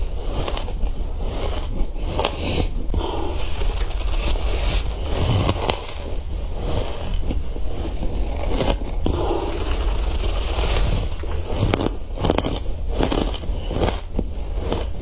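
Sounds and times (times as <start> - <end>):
chewing crunchy frost: 2.4 - 6.0, 9.1 - 13.5.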